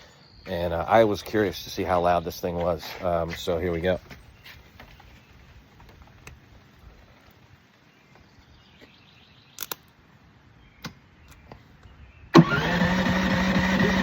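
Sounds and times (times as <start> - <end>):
generator running: 12.4 - 14.0.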